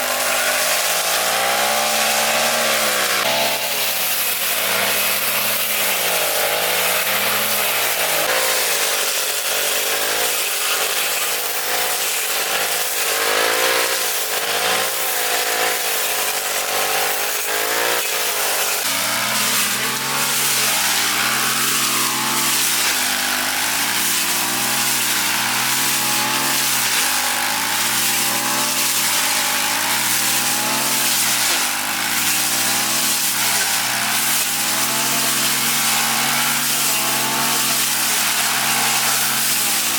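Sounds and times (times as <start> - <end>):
grass cutter engine running: 0.0 - 39.9.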